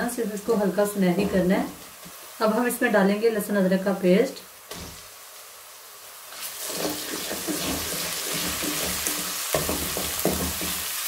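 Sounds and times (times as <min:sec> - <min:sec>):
onions sizzling in hot oil: 0:00.0 - 0:11.0
wooden spatula stirring and scraping: 0:06.4 - 0:10.9.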